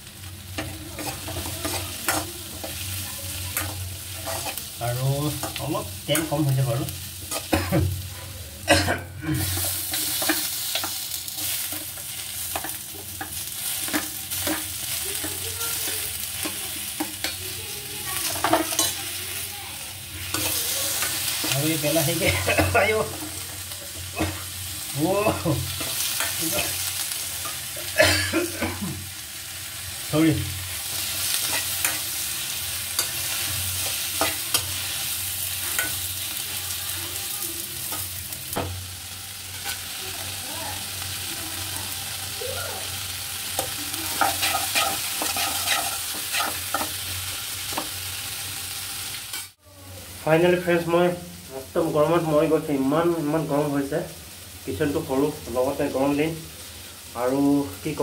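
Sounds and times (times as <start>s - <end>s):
onions sizzling in oil: 0.0s - 58.0s
spoon scraping metal pan: 44.2s - 47.0s.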